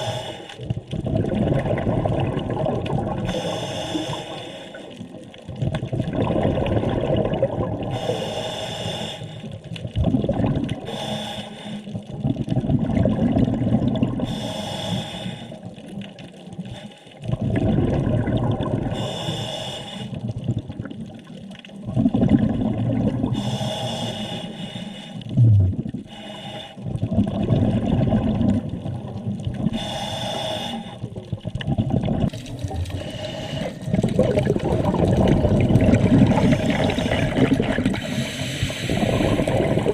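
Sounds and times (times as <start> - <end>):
regulator hiss on inhale: 0.0 - 0.6, 3.3 - 5.0, 7.9 - 9.6, 10.8 - 12.0, 14.2 - 15.7, 16.6 - 17.2, 18.9 - 20.2, 23.3 - 25.4, 26.1 - 26.8, 29.7 - 31.1, 32.8 - 34.0, 38.0 - 39.7
exhaled bubbles rushing: 0.6 - 3.4, 5.0 - 8.0, 9.8 - 10.9, 12.0 - 14.3, 17.2 - 19.0, 20.2 - 23.4, 25.3 - 26.1, 26.8 - 29.8, 31.0 - 39.9.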